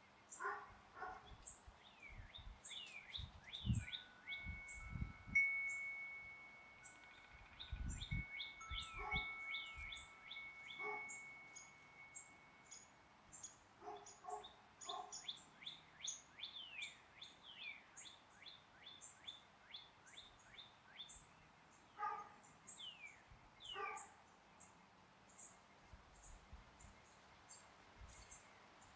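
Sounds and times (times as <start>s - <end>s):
songbirds chirping: 0.0s - 28.9s
wind chime ringing: 3.9s - 13.2s.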